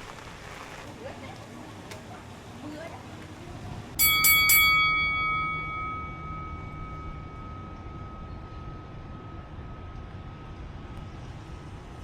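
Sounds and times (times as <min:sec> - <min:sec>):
steady low rumble: 0:03.5 - 0:12.0
bell-like tone ringing: 0:04.0 - 0:11.0.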